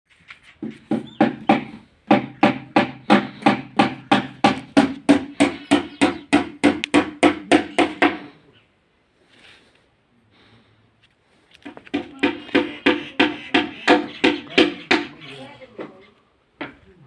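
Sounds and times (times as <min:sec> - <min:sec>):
hammer striking wood: 0:00.6 - 0:08.3, 0:11.6 - 0:15.2.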